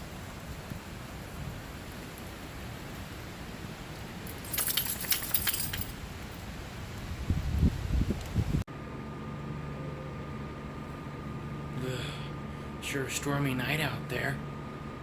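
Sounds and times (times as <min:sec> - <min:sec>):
keys jangling: 0:04.3 - 0:05.9.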